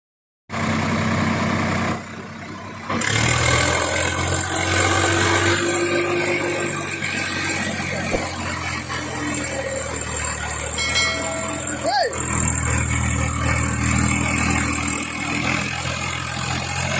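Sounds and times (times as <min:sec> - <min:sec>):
diesel engine running: 0:00.5 - 0:16.9.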